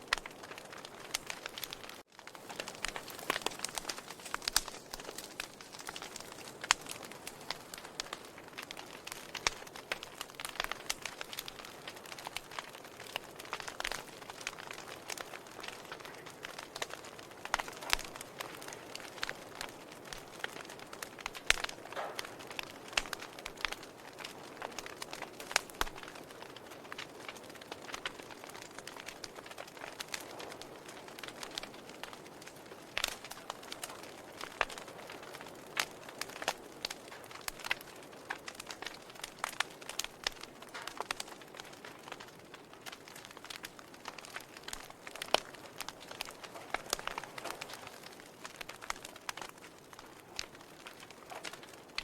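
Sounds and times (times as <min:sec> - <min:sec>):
burning logs crackling and popping: 0:00.0 - 0:52.0
fire hissing: 0:00.2 - 0:10.8.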